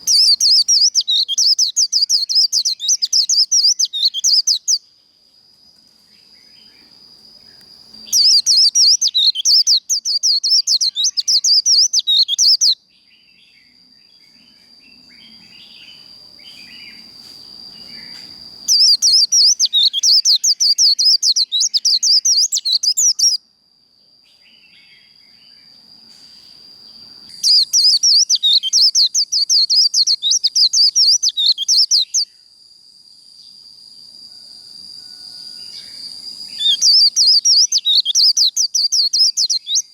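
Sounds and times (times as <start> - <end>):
bird singing chattering song: 0.0 - 4.9, 8.0 - 17.0, 17.8 - 23.4, 27.3 - 32.3, 35.8 - 39.9
faint steady high tone: 33.3 - 39.9.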